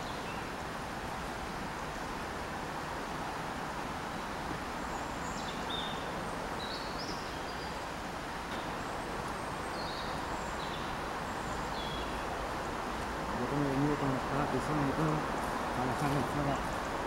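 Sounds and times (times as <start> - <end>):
small birds chirping: 0.0 - 0.7, 3.7 - 17.0.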